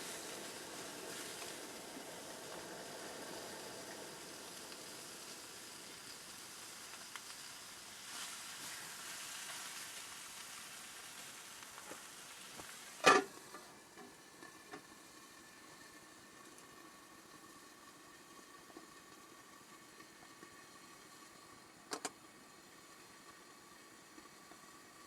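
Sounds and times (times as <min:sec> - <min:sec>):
steady sizzling hiss: 0:00.0 - 0:25.0.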